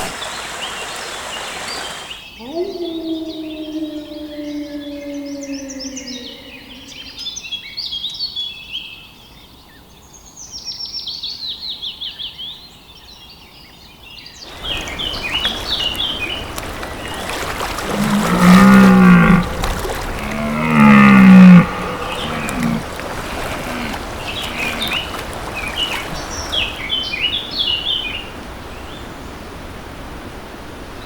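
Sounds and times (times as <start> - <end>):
songbirds chirping: 0.0 - 10.2, 12.9 - 29.5
cattle-like lowing calls: 2.4 - 7.3, 14.6 - 28.0.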